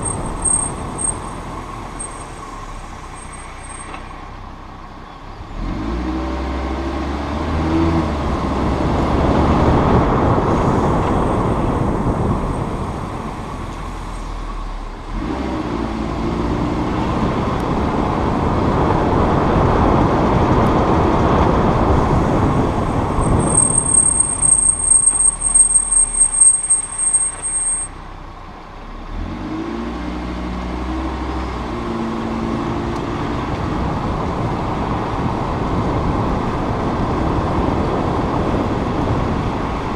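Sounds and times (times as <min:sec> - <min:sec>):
brakes squealing: 0:00.0 - 0:06.3, 0:08.4 - 0:28.3
car engine driving: 0:00.0 - 0:39.9.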